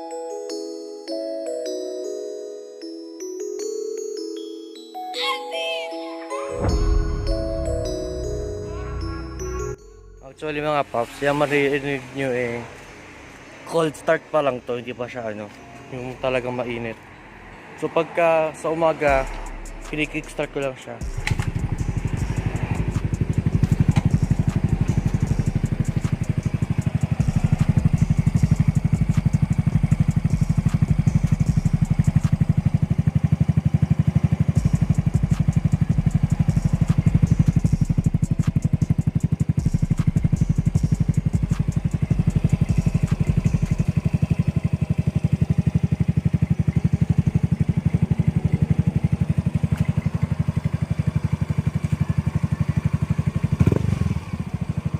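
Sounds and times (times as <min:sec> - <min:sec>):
motorcycle engine idling: 0:19.1 - 0:54.9.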